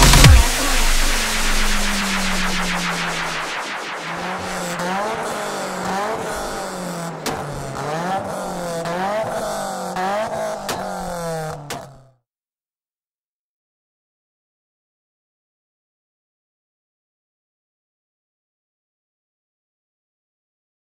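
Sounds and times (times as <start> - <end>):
car engine revving: 0.0 - 12.1
sharp exhaust cracks: 0.0 - 12.1.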